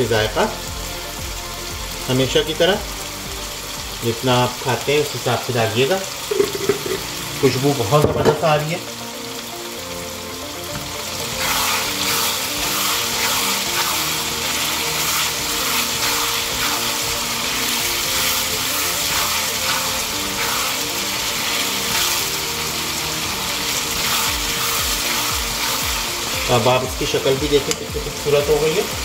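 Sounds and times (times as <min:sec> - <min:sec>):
chicken sizzling in a wok: 0:00.0 - 0:29.0
wooden spatula scraping: 0:10.8 - 0:27.9.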